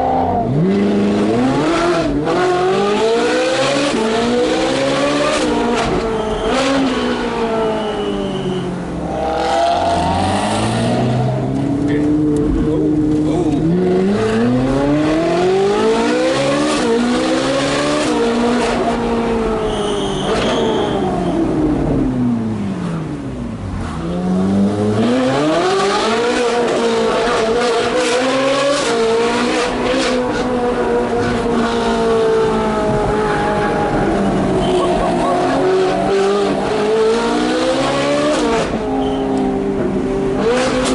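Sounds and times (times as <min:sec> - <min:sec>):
sports car engine revving: 0:00.0 - 0:07.9
high squeal: 0:06.1 - 0:08.8, 0:19.6 - 0:21.4.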